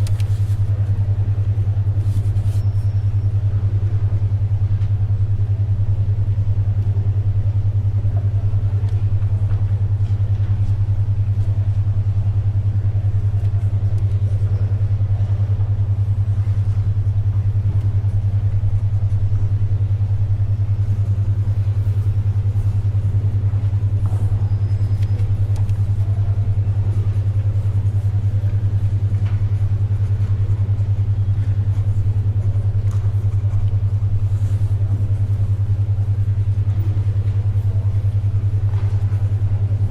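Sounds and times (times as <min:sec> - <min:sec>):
soft ticks of pages and pencil: 0:00.0 - 0:01.0
faint library background noise: 0:00.0 - 0:39.9
pulsing low hum tone: 0:00.0 - 0:39.9.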